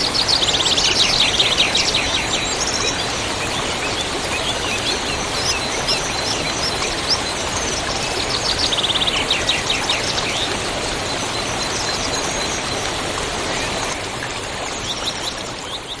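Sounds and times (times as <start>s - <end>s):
small birds chirping: 0.0s - 5.8s
river rushing: 0.0s - 5.9s.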